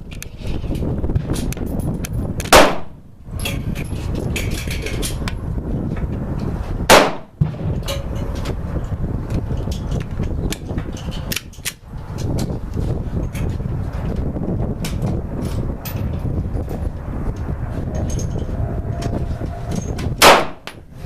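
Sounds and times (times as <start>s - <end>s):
wind on microphone: 0.0s - 21.0s
pistol shot: 2.5s - 2.9s, 6.9s - 7.8s, 20.2s - 20.7s.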